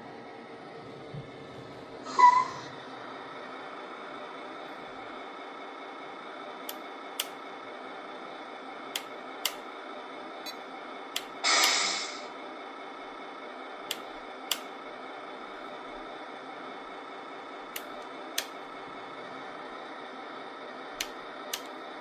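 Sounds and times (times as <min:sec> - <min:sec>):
sharp clicks: 0:09.0 - 0:09.6, 0:13.9 - 0:14.7
hiss of air: 0:11.3 - 0:12.3.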